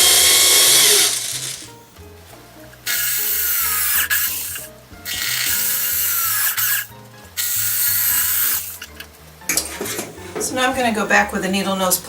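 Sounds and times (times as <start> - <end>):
power drill boring: 0.0 - 1.7, 2.8 - 8.9.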